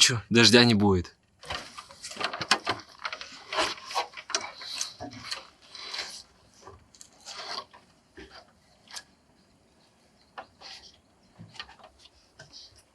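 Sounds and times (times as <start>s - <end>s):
scraping against wood: 1.5s - 9.1s.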